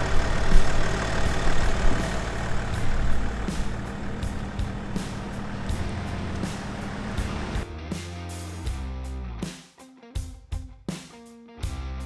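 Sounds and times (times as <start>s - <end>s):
off-road engines running: 0.0s - 7.6s.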